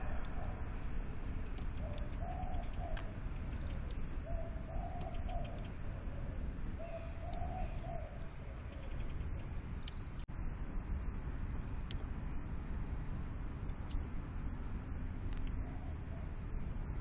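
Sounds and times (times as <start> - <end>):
dove cooing: 0.0 - 0.9, 1.7 - 9.2
low rumble: 0.0 - 17.0.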